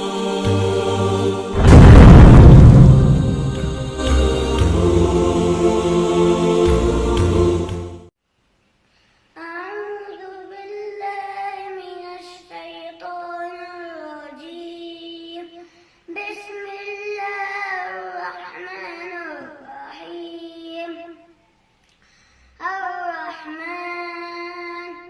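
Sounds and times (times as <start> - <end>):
loud musical intro with boom: 0.4 - 8.1.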